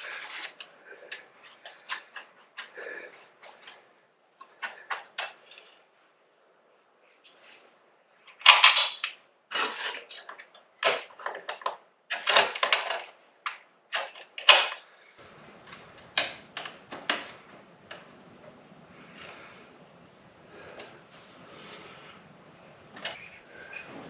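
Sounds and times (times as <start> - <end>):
faint steady hum: 14.9 - 24.0.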